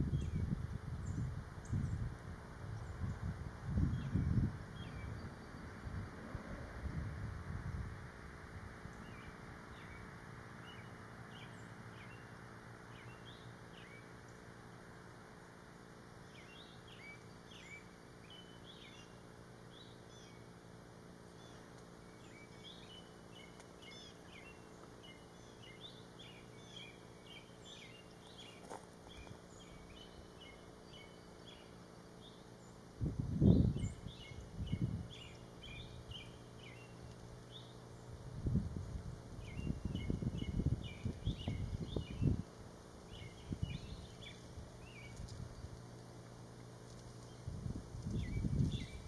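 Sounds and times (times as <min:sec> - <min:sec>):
birds chirping: 0:08.9 - 0:14.5, 0:15.7 - 0:20.6, 0:21.2 - 0:38.3, 0:39.4 - 0:49.0.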